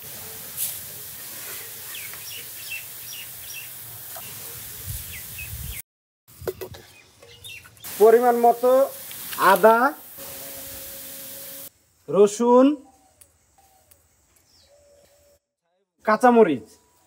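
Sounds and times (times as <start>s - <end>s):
outdoor background hiss: 0.0s - 15.4s
small birds chirping: 1.5s - 5.8s, 6.8s - 9.4s, 12.8s - 15.4s.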